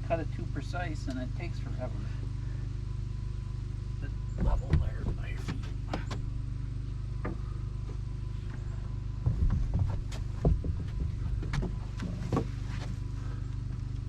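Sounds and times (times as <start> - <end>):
low mechanical hum: 0.0 - 14.0
knocks and clatters: 4.4 - 6.3, 9.2 - 12.7.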